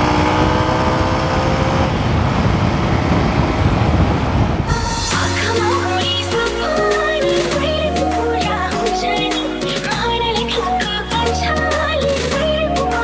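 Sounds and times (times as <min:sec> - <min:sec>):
motorcycle engine running: 0:00.0 - 0:04.7
wind noise on microphone: 0:00.0 - 0:06.9
background music: 0:04.7 - 0:13.0.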